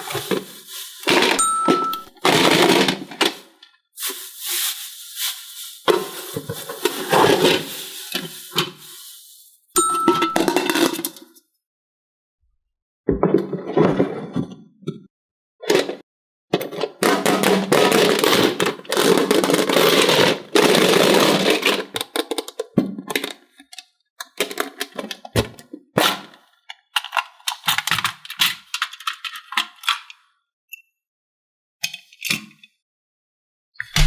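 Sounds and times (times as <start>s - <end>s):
plastic pieces clicking and clattering: 0.0s - 9.1s, 27.0s - 30.2s
plastic packaging crinkling: 0.0s - 11.0s.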